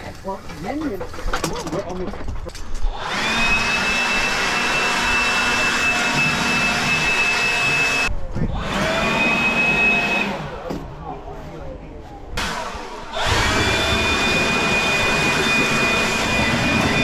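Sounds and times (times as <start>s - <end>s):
high-pitched electric motor whine: 2.9s - 10.4s, 12.4s - 17.0s.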